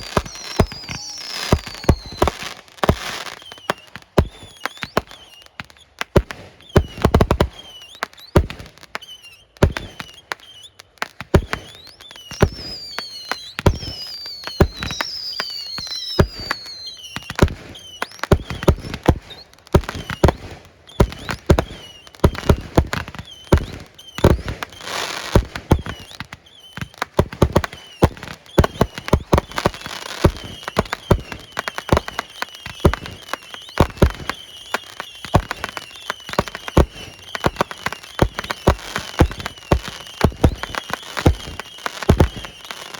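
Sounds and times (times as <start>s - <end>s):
fireworks booming: 0.0s - 3.6s, 13.6s - 15.2s, 17.2s - 26.1s, 27.2s - 42.7s
fireworks crackling: 0.0s - 42.9s
fireworks whistling: 0.0s - 42.9s.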